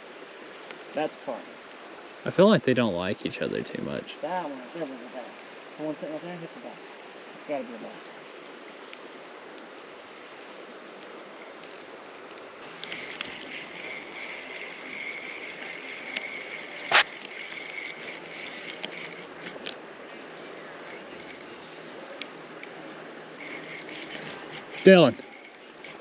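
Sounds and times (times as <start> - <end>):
river water running: 0.0 - 26.0
steady whirring tone: 12.4 - 26.0
sharp click: 16.9 - 17.7.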